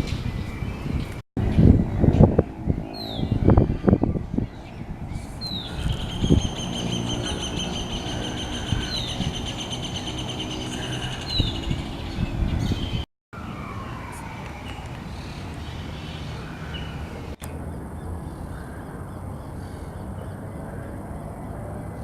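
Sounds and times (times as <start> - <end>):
low rumbling noise: 0.0 - 22.0
bird steady trill: 0.2 - 13.1.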